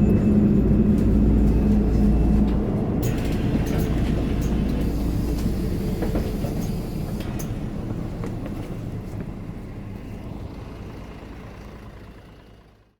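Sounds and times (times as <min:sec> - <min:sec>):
bus diesel engine rumbling: 0:00.0 - 0:12.9.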